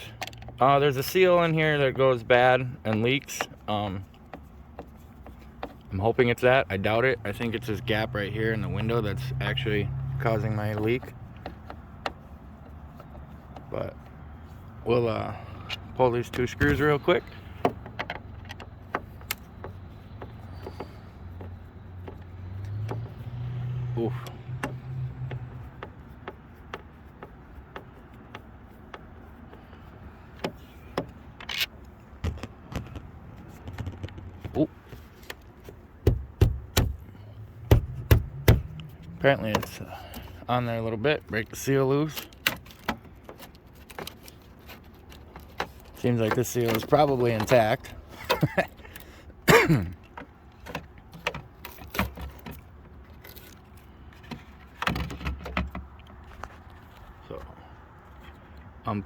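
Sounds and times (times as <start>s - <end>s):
plastic housing squeak: 15.6s - 40.5s
light plastic clicks and taps: 17.5s - 31.2s
knocks: 36.0s - 38.9s.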